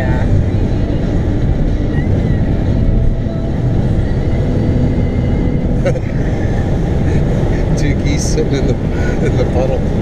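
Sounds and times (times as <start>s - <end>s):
car cabin road rumble: 0.0s - 10.0s.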